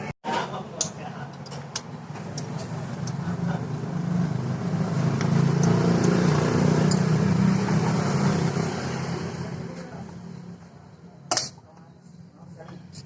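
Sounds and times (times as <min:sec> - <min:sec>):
vehicle engine passing by: 0:02.6 - 0:10.4.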